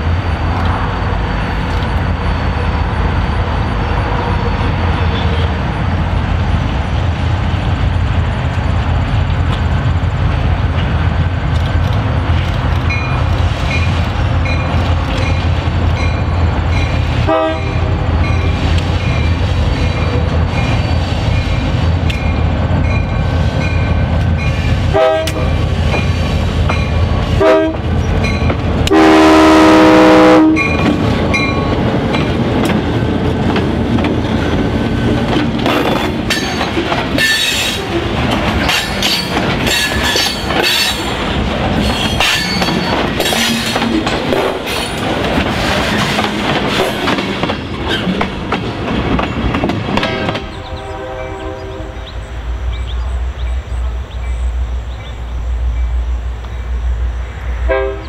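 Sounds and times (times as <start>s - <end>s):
diesel locomotive engines: 0.0s - 58.0s
high wheel squeals: 0.1s - 6.0s, 18.2s - 21.7s
train horn blasts: 17.2s - 18.6s, 24.8s - 25.6s, 27.3s - 27.9s, 28.8s - 31.6s, 50.0s - 52.2s, 57.6s - 58.0s.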